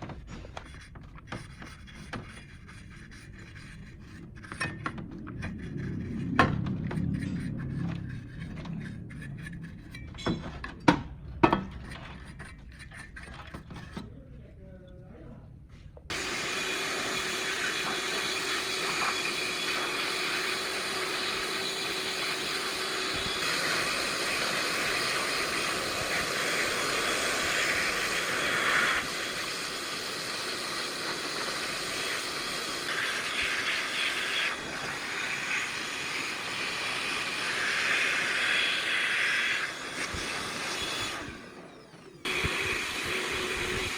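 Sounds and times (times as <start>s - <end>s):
steady hissing machine noise: 16.1s - 43.9s.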